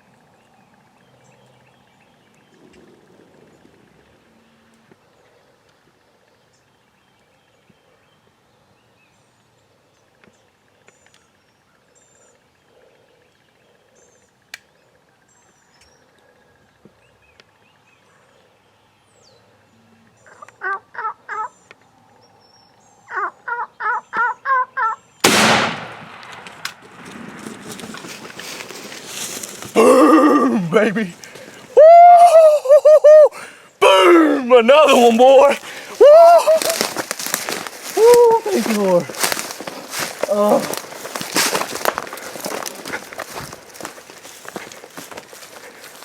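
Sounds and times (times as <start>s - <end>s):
faint songbird chirps: 0.0s - 25.2s
turkey gobbling: 20.3s - 21.5s, 23.1s - 25.0s
shotgun blast: 25.2s - 27.4s.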